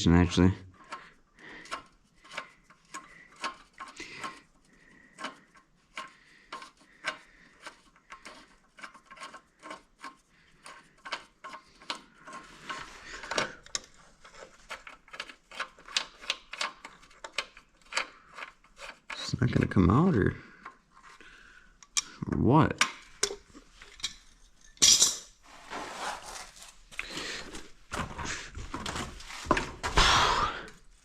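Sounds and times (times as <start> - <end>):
hand tools clicking on metal: 5.2 - 19.3.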